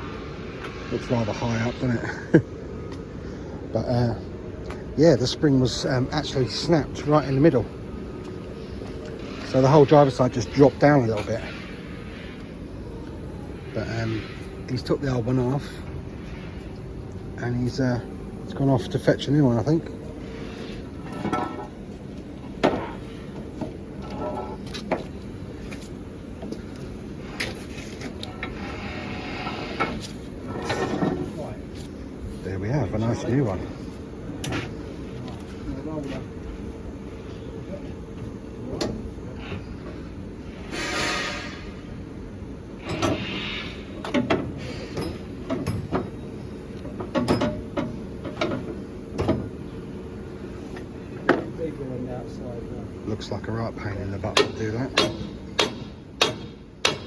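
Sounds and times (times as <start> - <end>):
metal clanks and knocks: 21.0 - 21.8, 22.5 - 25.1, 29.4 - 31.5, 44.0 - 46.2, 46.9 - 49.6, 54.2 - 57.0
short hisses: 40.5 - 41.8, 43.0 - 44.0
sharp knocks: 54.3 - 57.0.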